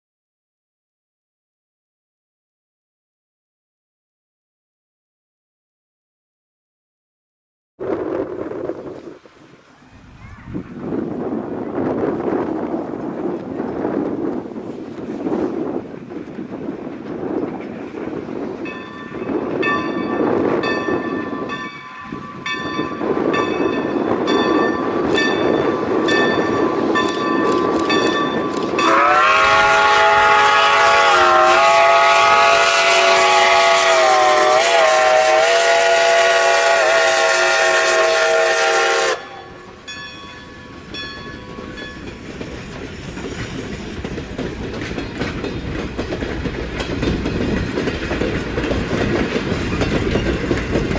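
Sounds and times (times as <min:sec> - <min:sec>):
train wheels clicking on rails: 0:12.0 - 0:50.9
ringing tone from wheels: 0:18.5 - 0:28.9, 0:39.2 - 0:44.1
locomotive chime horn: 0:18.7 - 0:42.0.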